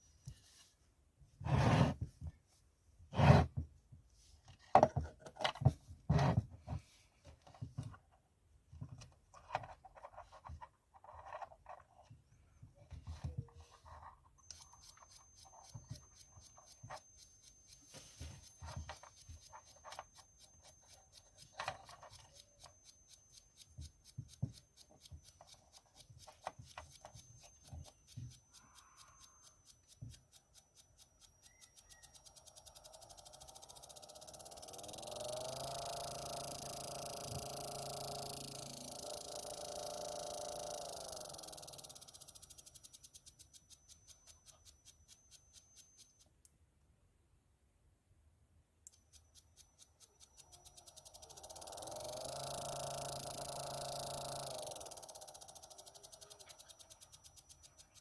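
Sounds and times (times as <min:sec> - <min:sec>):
small parts clicking and tapping: 0:04.5 - 0:05.9, 0:07.2 - 0:46.6, 0:48.8 - 0:58.0
faint high steady whine: 0:12.3 - 0:46.5, 0:48.8 - 0:58.0
rapid fine ticking: 0:14.4 - 0:46.2, 0:48.9 - 0:58.0.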